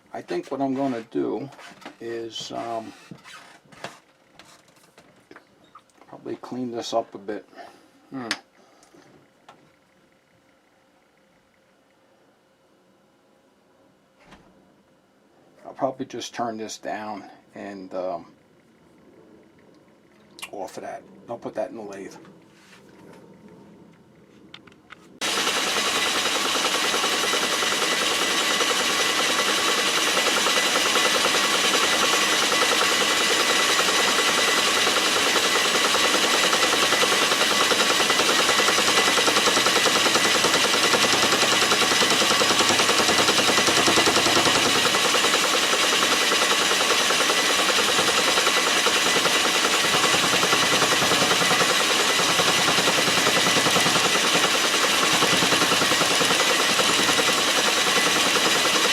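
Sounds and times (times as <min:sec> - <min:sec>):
metal lathe running: 0:25.2 - 0:58.9.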